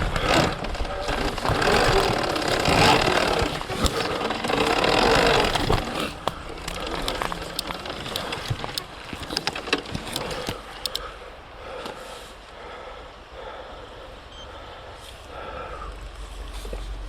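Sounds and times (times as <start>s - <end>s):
bike knocks and clicks: 0.0s - 11.1s
electric dirt bike riding: 0.0s - 12.3s.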